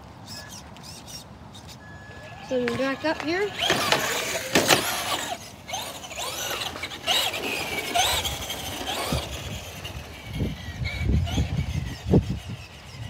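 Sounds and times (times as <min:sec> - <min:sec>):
electric toy motor whining: 0:00.2 - 0:13.0
wind rumble: 0:03.6 - 0:13.0.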